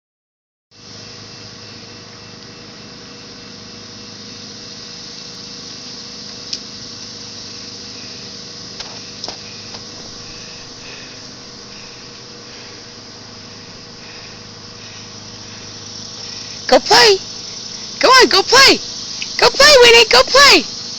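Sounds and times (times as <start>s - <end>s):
steady hissing noise: 0.8s - 20.9s
sharp clicks: 19.2s - 19.4s.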